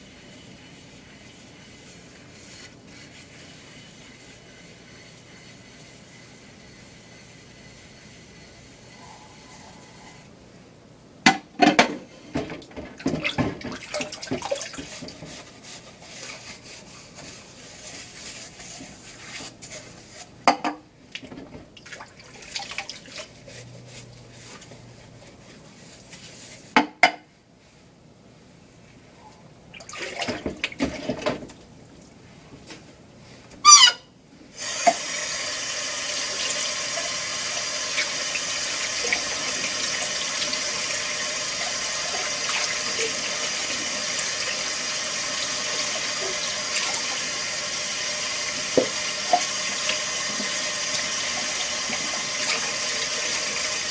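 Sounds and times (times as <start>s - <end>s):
dishwasher filling with water: 11.7s - 19.6s, 21.2s - 23.6s, 29.7s - 31.6s, 34.6s - 53.9s.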